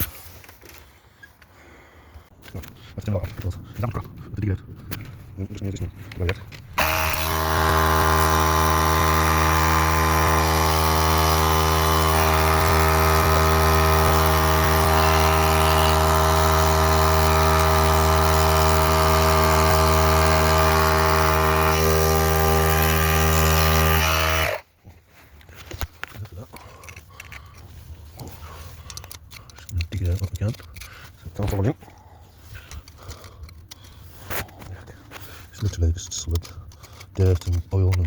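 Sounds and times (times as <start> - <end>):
workshop machine motor running: 6.2 - 24.6.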